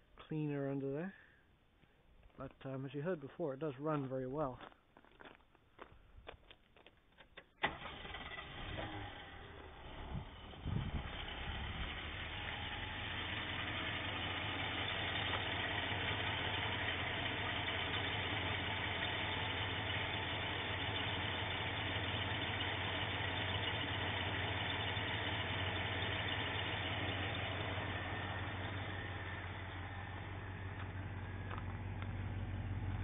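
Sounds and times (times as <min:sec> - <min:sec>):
car engine idling: 0:07.6 - 0:33.0.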